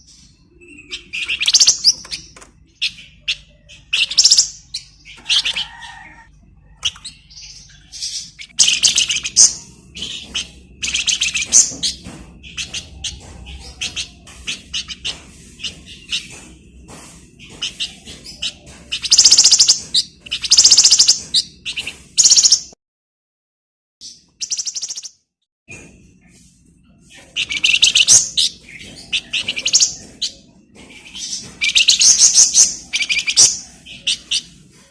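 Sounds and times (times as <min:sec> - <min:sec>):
bird chirps and twitters: 0:00.0 - 0:22.8, 0:24.0 - 0:25.2, 0:26.8 - 0:34.9
bird rattling trills: 0:01.0 - 0:07.2, 0:08.0 - 0:16.6, 0:17.4 - 0:22.6, 0:27.4 - 0:34.5.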